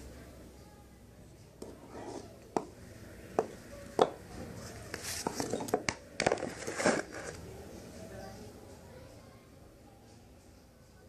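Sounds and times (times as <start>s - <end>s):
rustling: 4.5s - 7.4s.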